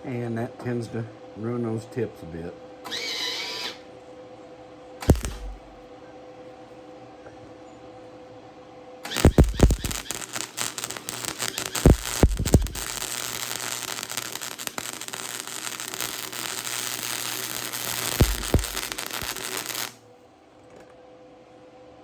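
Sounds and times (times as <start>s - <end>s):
welding arc crackling and sizzling: 5.0s - 5.8s, 9.1s - 20.0s
loud welding pops: 5.0s - 5.9s, 9.0s - 20.0s.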